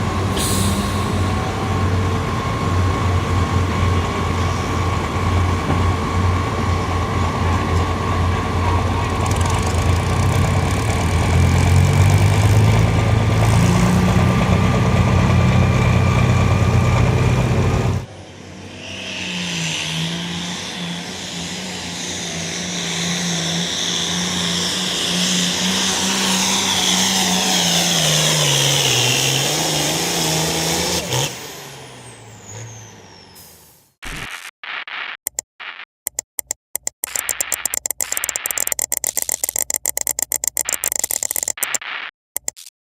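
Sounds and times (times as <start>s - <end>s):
truck engine revving: 0.0s - 33.8s
second truck engine wavering: 0.0s - 34.0s.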